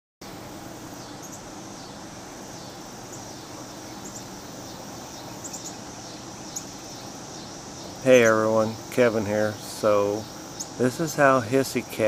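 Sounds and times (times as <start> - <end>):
background hiss: 0.2 - 12.0.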